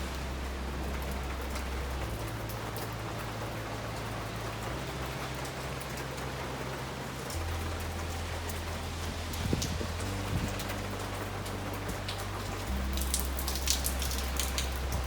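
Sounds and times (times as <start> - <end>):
raindrop ticks: 0.0 - 15.0
steady rain: 0.0 - 15.0
low rumble: 7.4 - 15.0.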